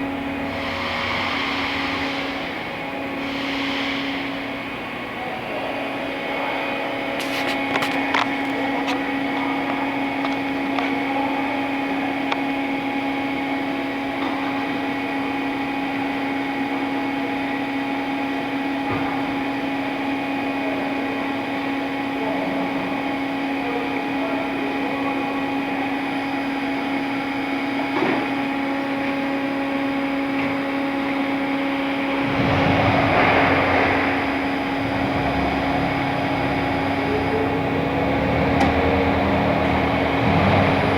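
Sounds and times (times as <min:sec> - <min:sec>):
loud rushing noise: 0:00.0 - 0:07.4, 0:31.8 - 0:40.9
machine motor hum: 0:00.0 - 0:12.6, 0:28.2 - 0:40.9.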